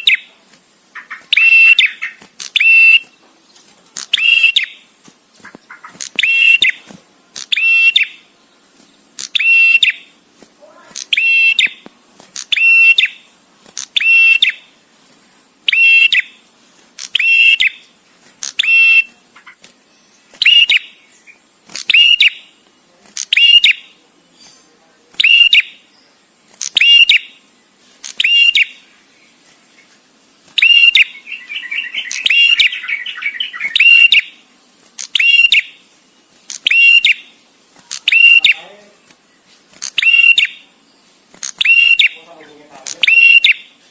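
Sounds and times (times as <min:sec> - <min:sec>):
bird chattering trill: 0:00.9 - 0:03.2, 0:04.0 - 0:04.8, 0:05.5 - 0:06.8, 0:07.4 - 0:08.2, 0:09.2 - 0:10.1, 0:10.8 - 0:11.8, 0:12.4 - 0:14.6, 0:15.7 - 0:16.4, 0:17.0 - 0:17.8, 0:18.4 - 0:19.6, 0:20.4 - 0:22.6, 0:23.2 - 0:24.0, 0:25.2 - 0:25.9, 0:26.6 - 0:27.4, 0:28.1 - 0:28.8, 0:30.6 - 0:34.4, 0:35.0 - 0:35.8, 0:36.5 - 0:37.3, 0:37.9 - 0:38.8, 0:39.8 - 0:40.7, 0:41.4 - 0:43.7
bird calling short high notes: 0:01.3 - 0:03.2, 0:37.9 - 0:38.6, 0:40.0 - 0:40.6, 0:43.0 - 0:43.7.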